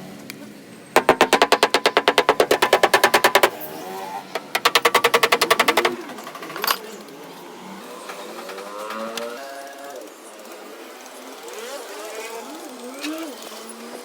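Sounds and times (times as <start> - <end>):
hammer taps on sheet metal: 1.0 - 3.7, 4.4 - 6.8.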